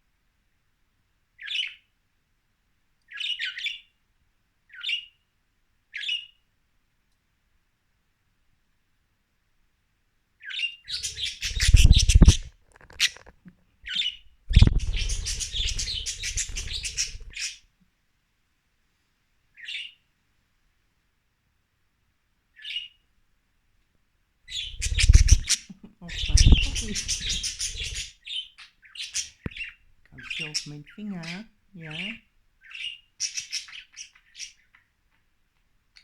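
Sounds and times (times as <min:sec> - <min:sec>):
budgerigars chirping: 0:10.4 - 0:13.3, 0:13.9 - 0:17.6, 0:24.5 - 0:34.9.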